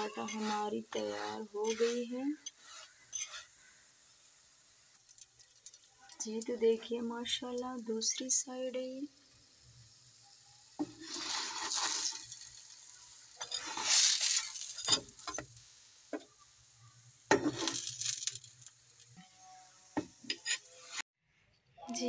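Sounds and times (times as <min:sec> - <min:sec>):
flatbread sizzling on griddle: 0:00.0 - 0:21.0
spatula clinking on griddle: 0:01.6 - 0:03.5.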